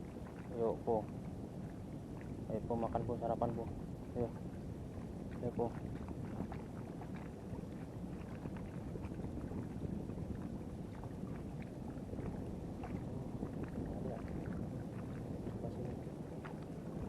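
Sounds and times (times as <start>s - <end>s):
seawater lapping against rocks: 0.0s - 17.0s
small splashes: 5.3s - 17.0s.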